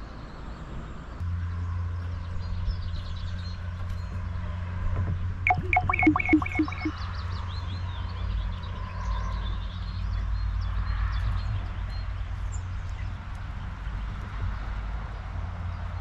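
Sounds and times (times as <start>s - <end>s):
small songbirds chirping: 5.5s - 6.9s.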